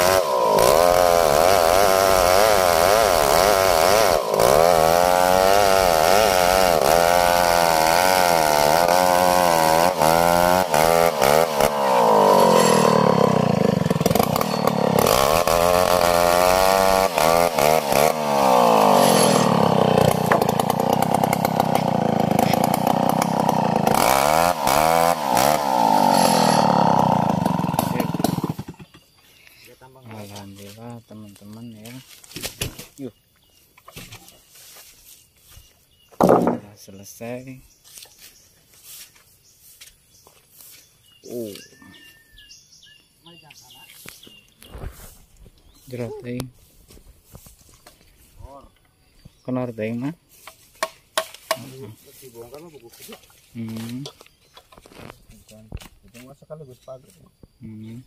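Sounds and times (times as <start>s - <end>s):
chainsaw sawing a log: 0.0s - 29.0s, 36.2s - 36.6s.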